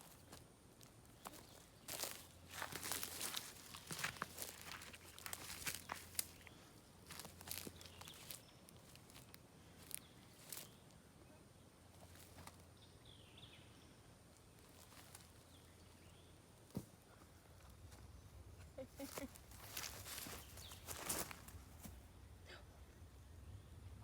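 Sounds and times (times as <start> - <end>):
soft footsteps: 0.0 - 11.0, 16.6 - 22.0.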